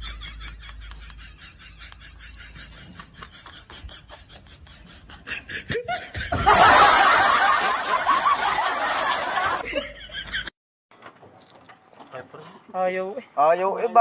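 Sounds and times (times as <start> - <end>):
quiet snickering laughter: 0.0 - 6.4
loud burst of laughter: 0.0 - 9.8.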